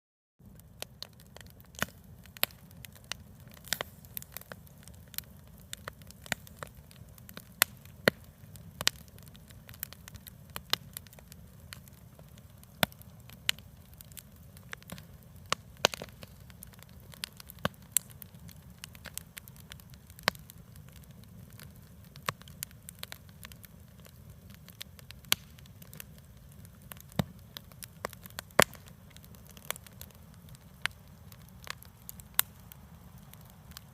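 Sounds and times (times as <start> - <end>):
campfire crackling and popping: 0.4 - 33.9.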